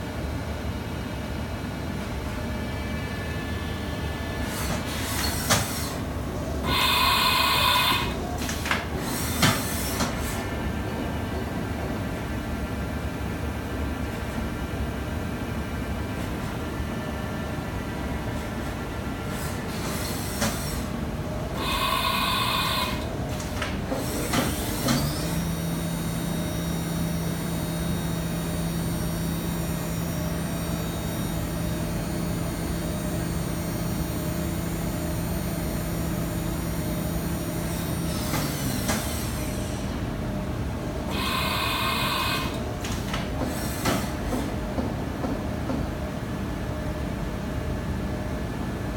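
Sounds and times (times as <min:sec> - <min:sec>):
machine spindle humming: 0:02.6 - 0:09.4, 0:19.4 - 0:33.4, 0:40.6 - 0:42.8
short buzzing bursts: 0:06.6 - 0:08.2.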